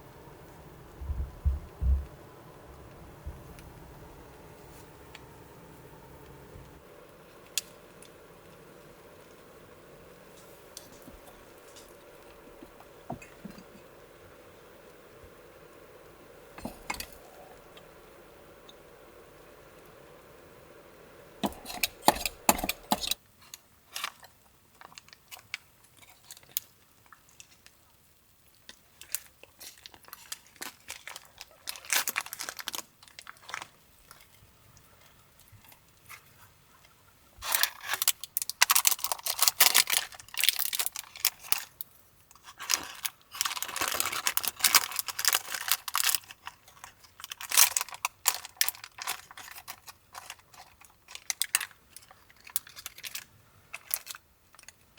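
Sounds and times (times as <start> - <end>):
crinkling packaging handled: 29.6 - 34.3, 37.4 - 41.8, 42.4 - 54.8.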